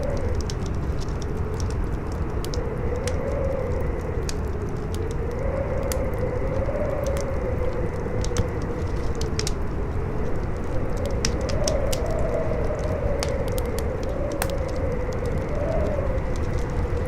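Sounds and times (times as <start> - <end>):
fire crackling and popping: 0.0 - 17.0
howling wind: 0.0 - 17.0.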